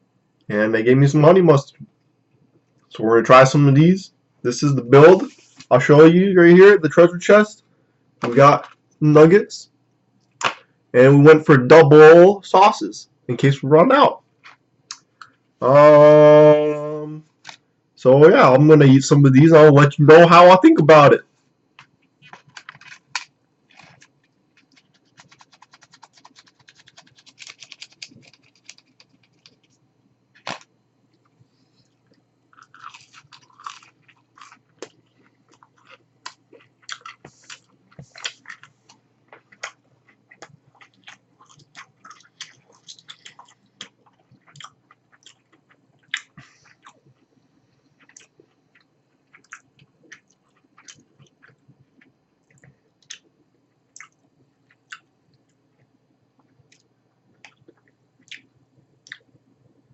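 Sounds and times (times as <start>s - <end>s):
person chewing crunchy food: 21.8s - 55.1s.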